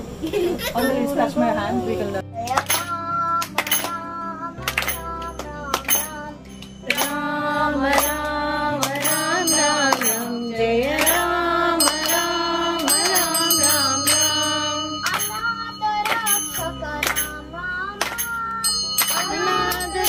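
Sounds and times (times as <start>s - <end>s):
steady drone: 3.6s - 20.0s
gliding melody line: 4.6s - 20.0s
bell strikes: 5.8s - 20.0s.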